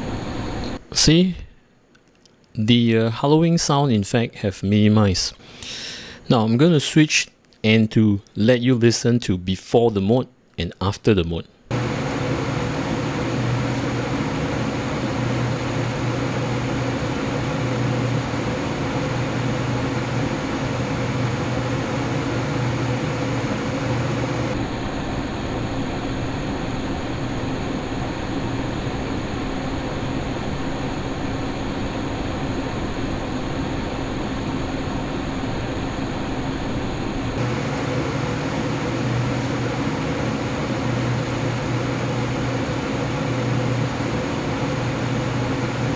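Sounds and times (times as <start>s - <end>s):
high whistling of air through vents: 0.0s - 0.9s, 11.7s - 45.9s
computer fans whirring: 0.0s - 1.1s, 11.7s - 45.9s.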